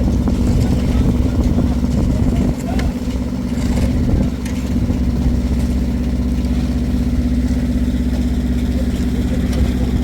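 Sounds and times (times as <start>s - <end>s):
engine running steadily: 0.0s - 10.0s.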